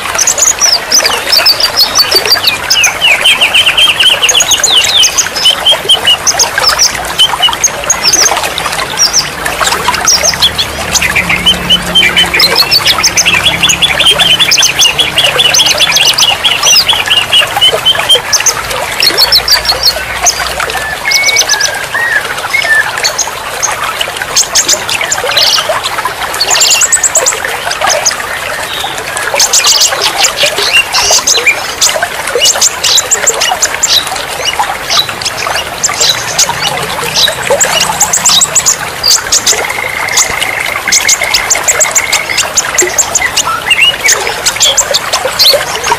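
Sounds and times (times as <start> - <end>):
running water splashing: 0.0 - 45.9
songbirds chirping and trilling: 0.0 - 45.9.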